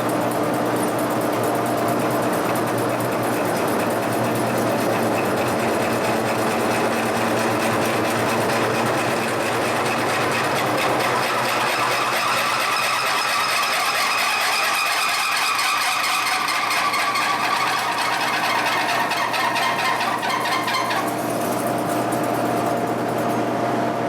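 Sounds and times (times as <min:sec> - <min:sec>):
machine drilling steel: 0:05.1 - 0:23.1.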